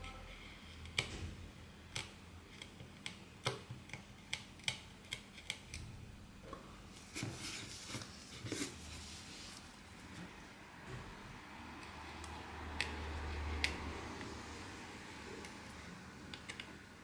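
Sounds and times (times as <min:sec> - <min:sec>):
small tools clicking on phone: 0:01.9 - 0:05.8.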